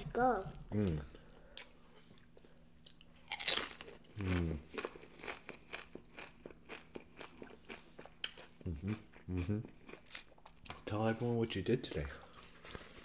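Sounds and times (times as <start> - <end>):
crunchy chewing: 0.9 - 10.8
person humming: 4.2 - 4.6, 8.6 - 9.6.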